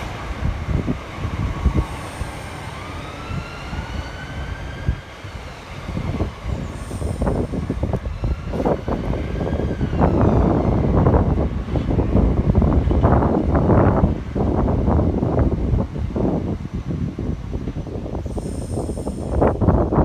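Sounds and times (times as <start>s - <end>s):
train motors whining: 0.0s - 11.2s.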